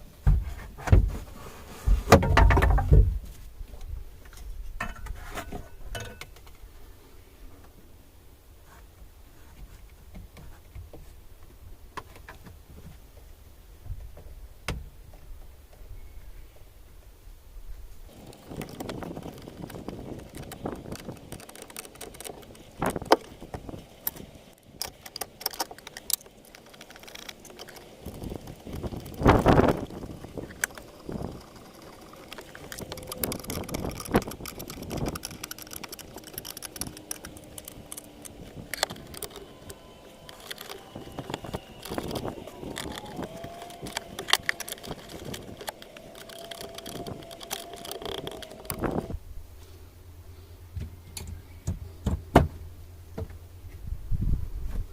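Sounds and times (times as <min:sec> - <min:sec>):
hand tools clicking and knocking: 0:18.1 - 0:49.1.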